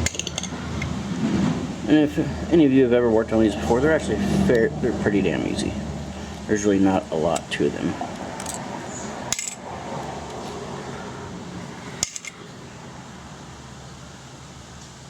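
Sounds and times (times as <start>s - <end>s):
metal clutch plates clinking: 0.0s - 1.0s, 7.3s - 9.7s, 12.0s - 12.4s
steady low hum: 0.0s - 15.0s.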